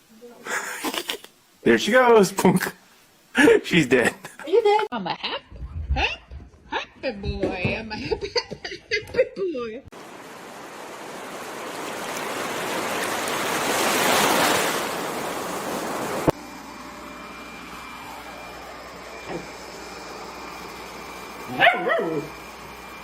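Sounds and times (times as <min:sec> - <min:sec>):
dog yelping: 0:21.5 - 0:22.3.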